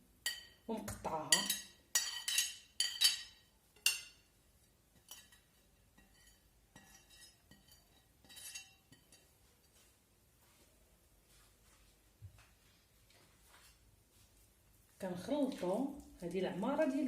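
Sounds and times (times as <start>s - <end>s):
utensil scraping bowl: 5.0s - 9.2s.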